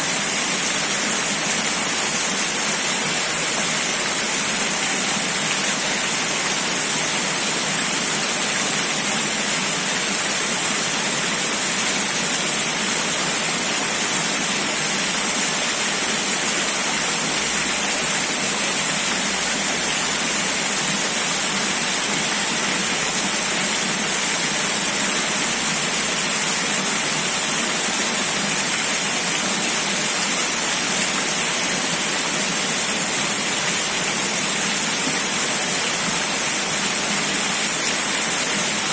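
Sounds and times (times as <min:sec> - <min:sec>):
rushing water hiss: 0:00.0 - 0:38.9.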